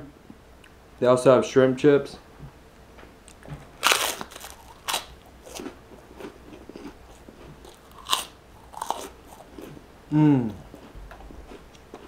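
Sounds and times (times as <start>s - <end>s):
crunching prawn crackers: 3.8s - 9.8s, 10.7s - 12.0s.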